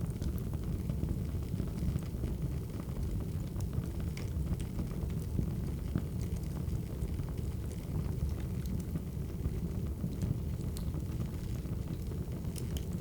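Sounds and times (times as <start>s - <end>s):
wood fire crackling: 10.1s - 13.0s.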